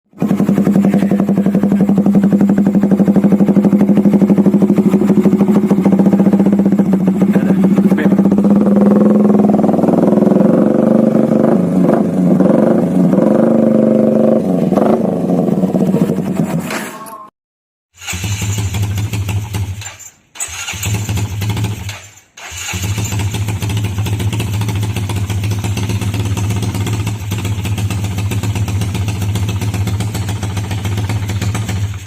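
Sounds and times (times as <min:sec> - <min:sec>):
motorcycle engine idling: 0:00.1 - 0:12.2, 0:18.2 - 0:19.8, 0:22.8 - 0:32.0.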